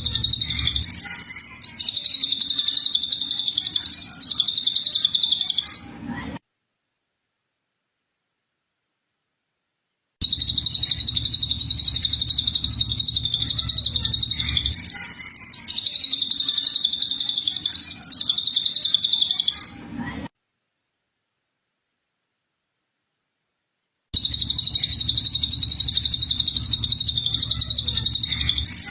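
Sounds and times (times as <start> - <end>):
songbird trilling: 0.0 - 5.8, 10.2 - 19.7, 24.2 - 28.9.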